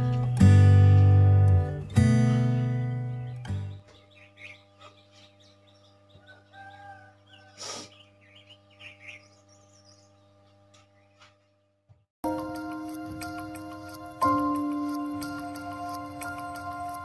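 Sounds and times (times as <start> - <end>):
small birds chirping: 1.7 - 12.0.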